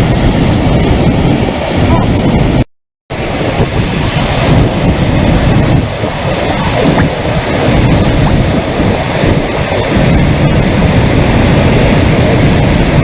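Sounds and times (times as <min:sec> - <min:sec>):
floodwater rushing: 0:00.0 - 0:13.0
wind buffeting microphone: 0:00.0 - 0:13.0.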